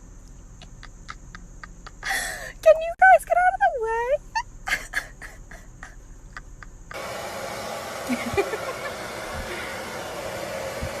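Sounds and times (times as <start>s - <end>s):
steady rushing noise: 7.0s - 11.0s.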